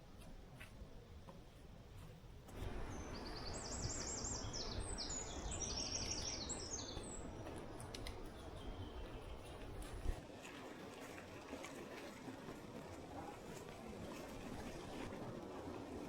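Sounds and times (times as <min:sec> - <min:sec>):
songbird singing: 0:02.5 - 0:10.0.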